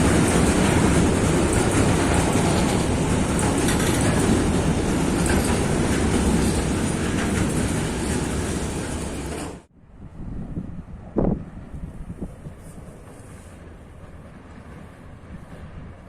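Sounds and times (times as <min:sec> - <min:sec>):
wheels clattering over rails: 0:00.0 - 0:09.7
train rumbling past: 0:00.0 - 0:16.0.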